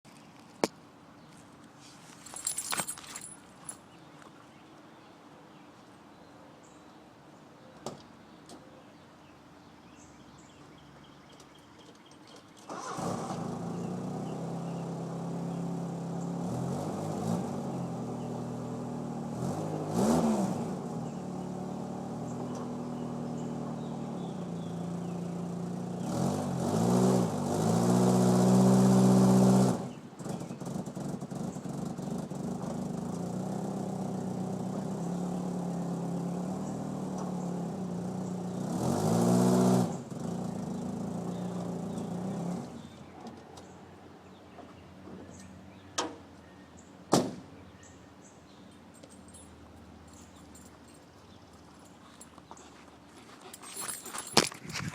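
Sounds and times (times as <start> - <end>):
truck engine idling and revving: 12.8 - 43.8.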